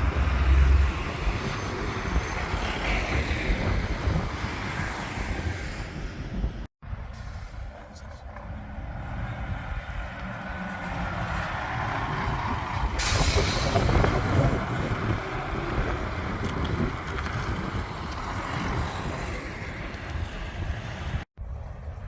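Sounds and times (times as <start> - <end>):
air brake hiss: 13.0 - 14.0.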